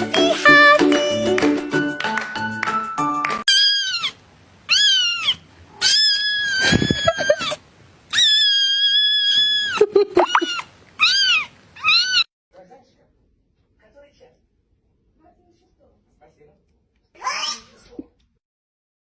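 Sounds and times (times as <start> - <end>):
cat meowing: 3.5 - 12.3.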